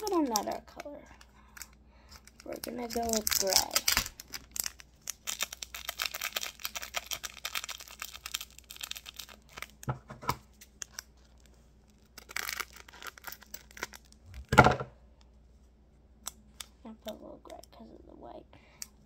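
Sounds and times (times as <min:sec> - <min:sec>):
plastic packet crinkling: 0:00.0 - 0:14.4.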